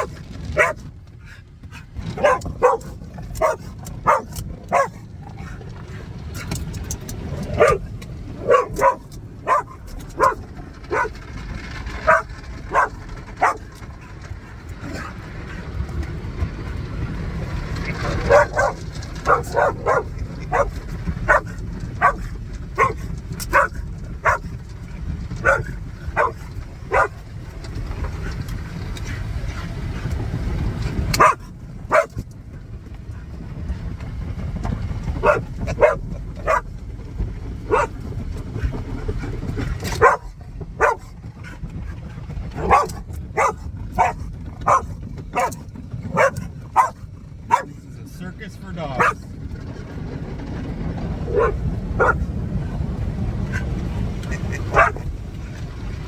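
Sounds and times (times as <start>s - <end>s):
dog barking and yipping: 0.0s - 0.9s, 2.0s - 5.6s, 7.2s - 15.6s, 17.6s - 27.2s, 31.1s - 32.2s, 35.0s - 36.8s, 37.6s - 38.2s, 39.6s - 41.6s, 42.5s - 47.8s, 49.0s - 49.3s, 51.2s - 52.3s, 54.3s - 55.1s
car wash machinery rumble: 0.0s - 56.0s.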